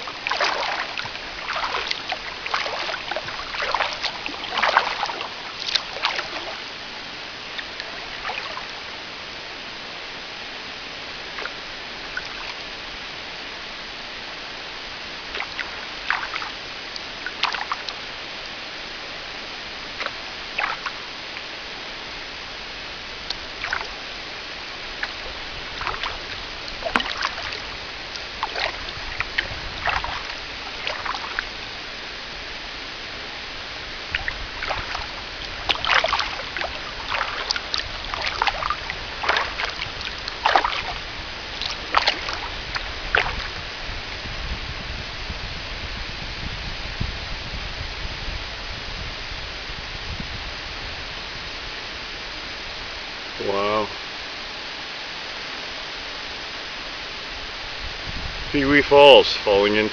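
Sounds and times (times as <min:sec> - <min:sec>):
paddle splashing in water: 0:00.0 - 0:44.4
steady rushing hiss: 0:00.0 - 0:59.9.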